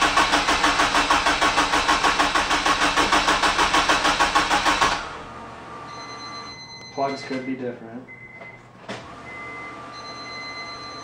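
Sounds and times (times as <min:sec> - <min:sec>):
engine cranking by starter: 0:00.0 - 0:05.3.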